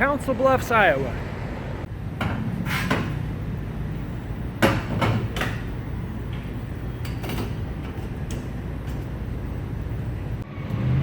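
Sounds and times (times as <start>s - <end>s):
steady low hum: 1.1s - 10.5s.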